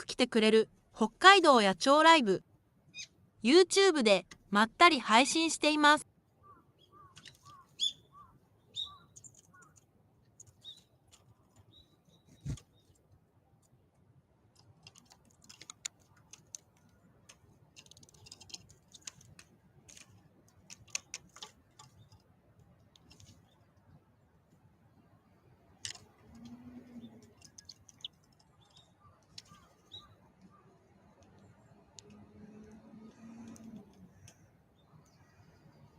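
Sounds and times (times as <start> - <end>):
small birds chirping: 2.9 - 3.2, 6.3 - 13.1, 14.7 - 24.3, 24.9 - 32.0, 33.2 - 35.9.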